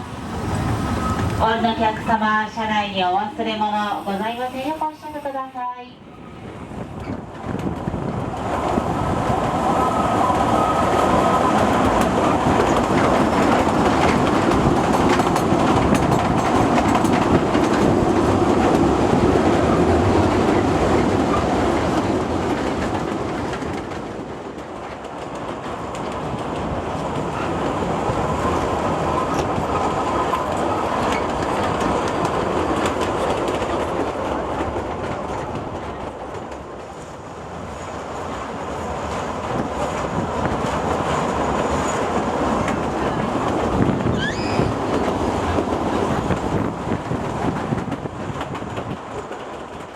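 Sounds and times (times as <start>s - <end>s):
faint wheel squeal: 0.8s - 1.4s, 44.0s - 44.8s
train wheels clattering over rail joints: 11.6s - 36.9s, 39.4s - 49.9s.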